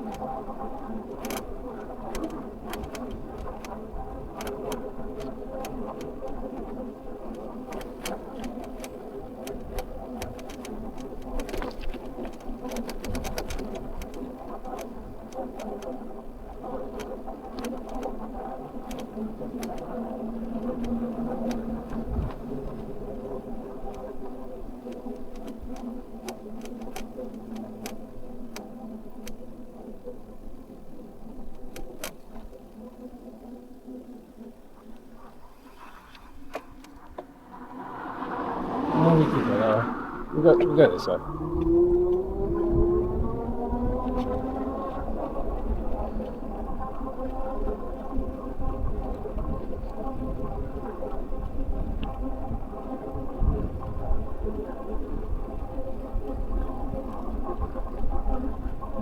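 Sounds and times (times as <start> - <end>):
bike clicks and rattles: 0.0 - 33.0, 35.1 - 38.8, 40.6 - 47.2
electric bike motor whine: 0.0 - 59.0
low wind rumble: 0.0 - 59.0.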